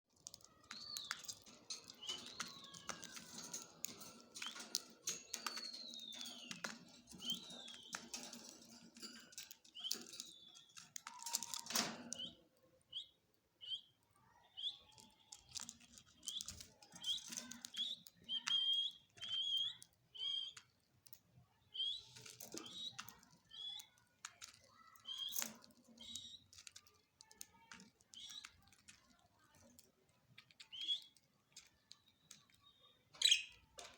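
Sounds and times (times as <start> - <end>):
parrots whistling and chirping: 16.2 - 20.6.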